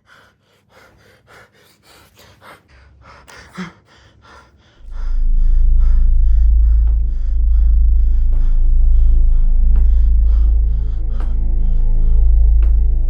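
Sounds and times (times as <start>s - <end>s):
person breathing hard: 0.0s - 13.0s
music with deep bass drone: 4.6s - 13.0s.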